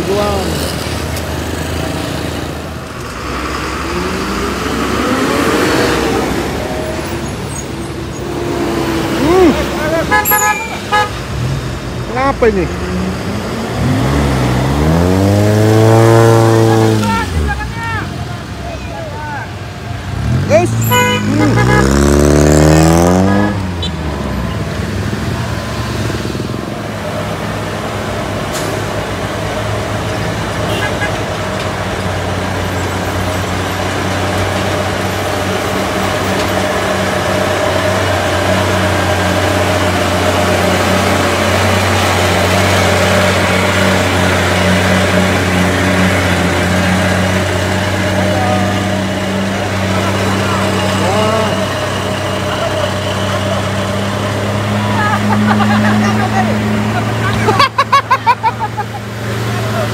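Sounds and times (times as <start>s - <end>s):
vehicle engines humming: 0.0s - 59.9s
vehicle passing: 10.8s - 18.5s, 19.1s - 30.7s.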